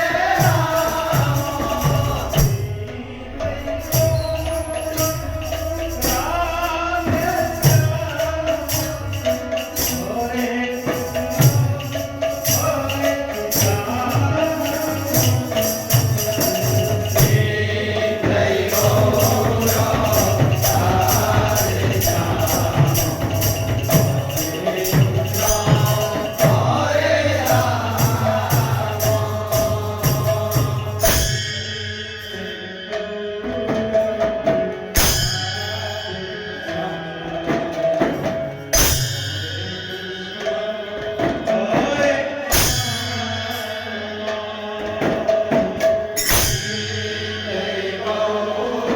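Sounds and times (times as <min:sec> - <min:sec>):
drum beat: 0:00.0 - 0:31.4
voices chanting: 0:00.0 - 0:31.4, 0:46.7 - 0:48.9
small cymbals jingling: 0:00.0 - 0:48.9.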